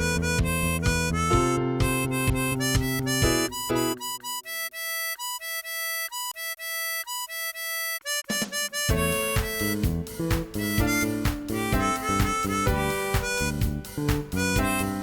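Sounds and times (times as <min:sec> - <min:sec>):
backing track with bass and beat: 0:00.0 - 0:06.2, 0:07.0 - 0:15.0
tremolo harmonica melody: 0:00.0 - 0:15.0.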